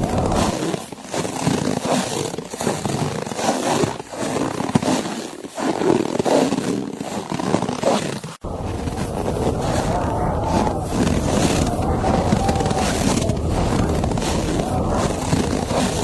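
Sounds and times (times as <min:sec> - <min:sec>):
footsteps crunching on snow: 0:08.4 - 0:16.0.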